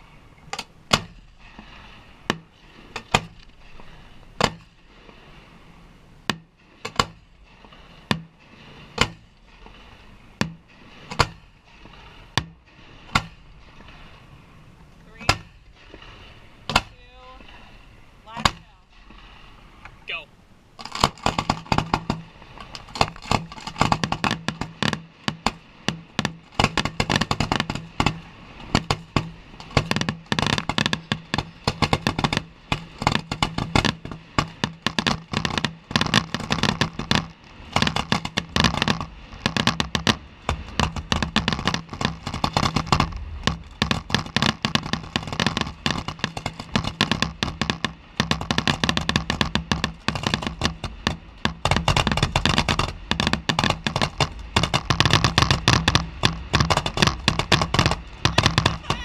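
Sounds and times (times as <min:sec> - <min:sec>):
fireworks bangs and crackles: 0:06.2 - 0:14.2, 0:20.8 - 0:59.0.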